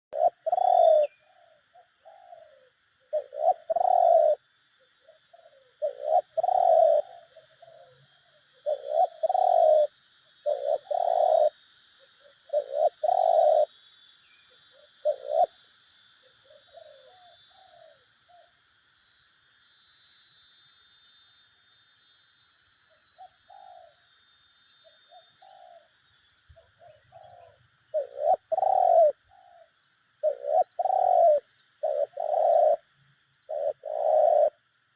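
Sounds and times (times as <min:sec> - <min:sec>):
doves cooing: 0:00.1 - 0:11.6, 0:12.2 - 0:13.7, 0:14.6 - 0:15.6, 0:16.5 - 0:18.0, 0:23.2 - 0:24.0, 0:25.1 - 0:25.9, 0:26.6 - 0:32.9, 0:33.5 - 0:34.6.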